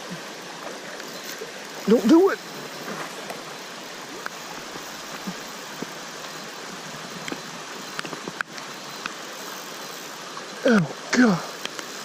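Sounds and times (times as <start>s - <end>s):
flowing creek water: 0.0s - 12.0s
faint ticks and clicks: 5.1s - 12.0s.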